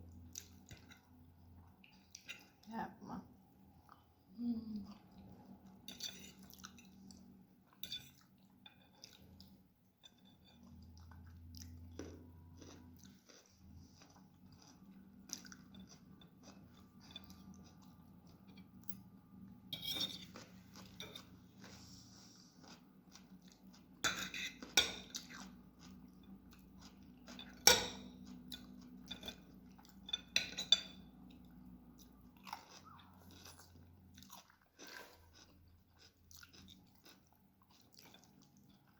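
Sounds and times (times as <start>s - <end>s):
person chewing and slurping: 10.5s - 18.6s, 20.2s - 30.1s, 32.0s - 38.9s.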